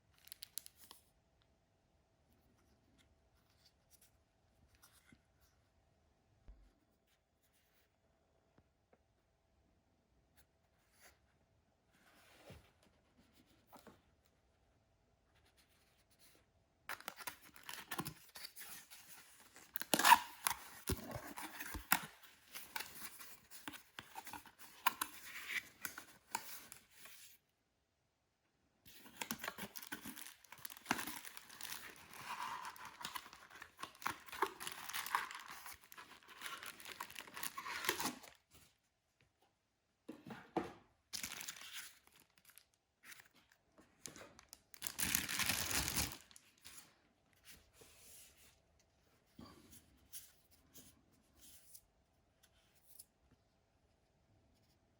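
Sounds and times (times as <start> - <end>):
packaging rustling and tearing: 16.9 - 27.0, 28.9 - 38.4, 41.2 - 43.3, 44.4 - 46.7.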